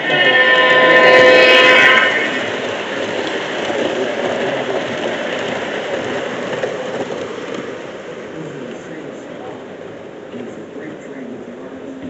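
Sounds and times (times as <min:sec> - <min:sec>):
model locomotive horn chord: 0:00.0 - 0:03.0
model trains rumbling on track: 0:00.0 - 0:12.0.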